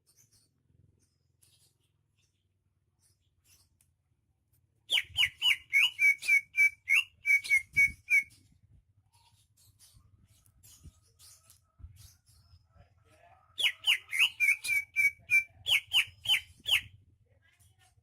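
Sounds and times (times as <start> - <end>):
bird singing whistled notes: 4.9 - 8.5, 13.6 - 17.0.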